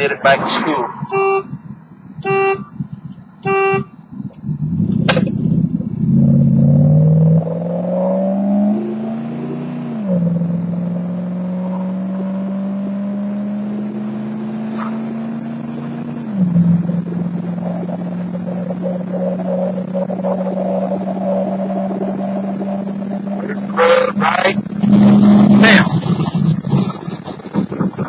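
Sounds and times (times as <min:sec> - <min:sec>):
truck engine accelerating: 0:00.0 - 0:28.0
car horn honk: 0:01.0 - 0:04.1.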